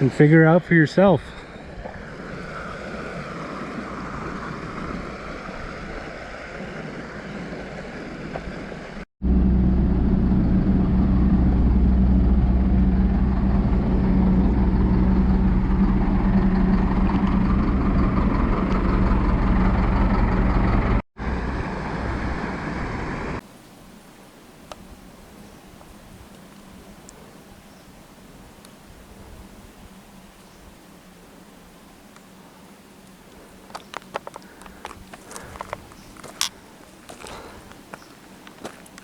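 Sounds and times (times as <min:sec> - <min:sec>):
steady outdoor hiss: 0:00.0 - 0:09.0, 0:21.2 - 0:39.0
vehicle engine droning: 0:08.3 - 0:23.4.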